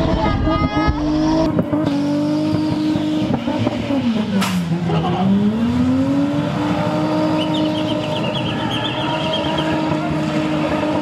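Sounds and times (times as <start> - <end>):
car engine revving: 0.0 - 11.0
tire squeal: 6.7 - 11.0.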